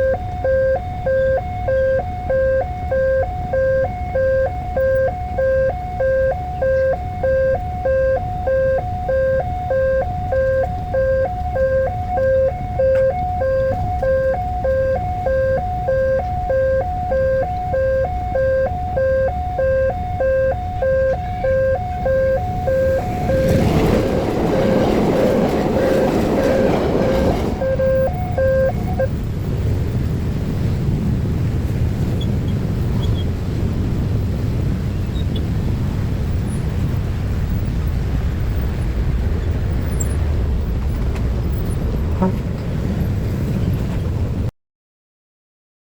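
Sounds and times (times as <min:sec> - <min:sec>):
level crossing two-tone alarm: 0:00.0 - 0:29.2
passing train rattle: 0:20.1 - 0:44.5.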